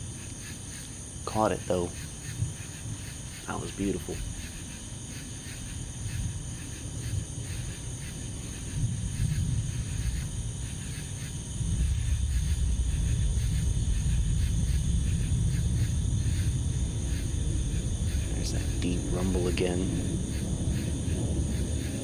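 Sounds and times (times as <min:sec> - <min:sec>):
insect chirring: 0:00.0 - 0:22.0
deep thunder rumbling: 0:06.0 - 0:22.0.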